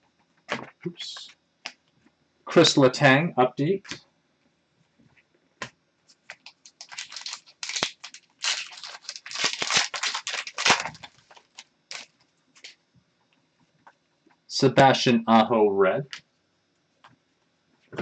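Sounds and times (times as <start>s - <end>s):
cards and wrappers rustling: 6.1s - 12.7s.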